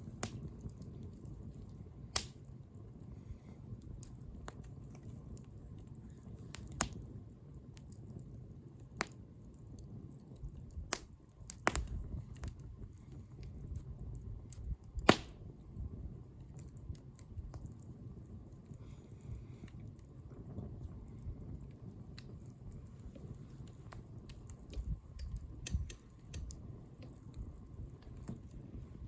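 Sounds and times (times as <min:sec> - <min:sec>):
bonfire crackling: 0:00.0 - 0:29.0
low rumble of flames: 0:00.0 - 0:29.0
sharp pops: 0:15.0 - 0:15.4.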